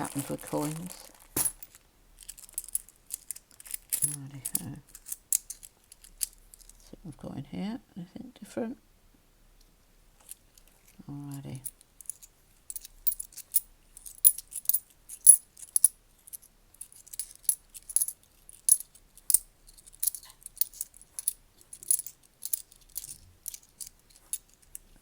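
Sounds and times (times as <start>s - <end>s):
coins clicking together: 12.0s - 15.9s, 16.8s - 24.8s.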